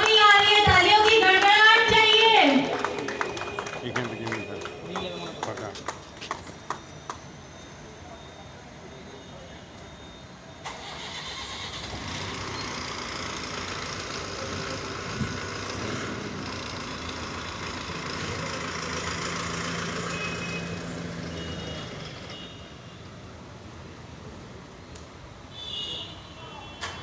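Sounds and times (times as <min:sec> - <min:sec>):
diesel engine running: 0:00.0 - 0:07.1, 0:10.6 - 0:22.4.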